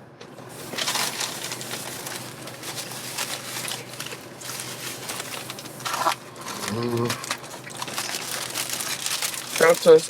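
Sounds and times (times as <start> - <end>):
person chewing food: 0.6 - 9.6
mouth noises: 6.5 - 7.3.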